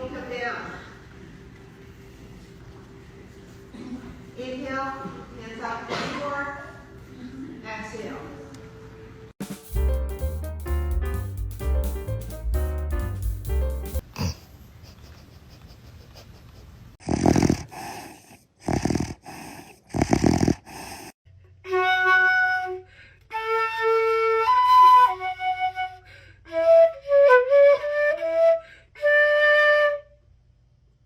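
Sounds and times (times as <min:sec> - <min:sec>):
flute-like melody: 0:21.6 - 0:30.1.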